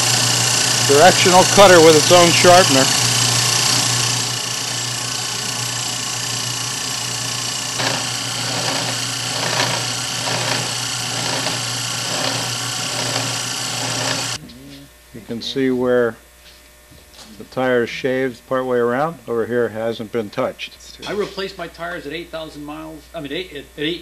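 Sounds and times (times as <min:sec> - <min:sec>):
cutter biting tire strokes: 0:00.0 - 0:14.4
cutter shaving tire rasping whir: 0:00.0 - 0:14.4
motor hum: 0:00.0 - 0:15.3.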